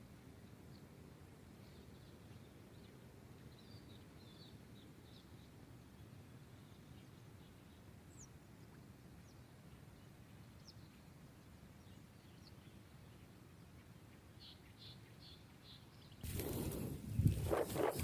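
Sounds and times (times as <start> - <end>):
faint high bird chirps: 11.8 - 17.4
steady low rumble: 16.3 - 18.0.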